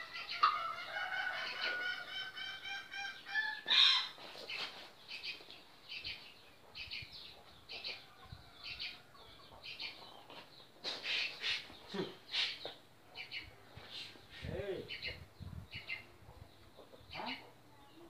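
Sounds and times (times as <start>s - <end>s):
birds chirping: 1.5s - 18.0s.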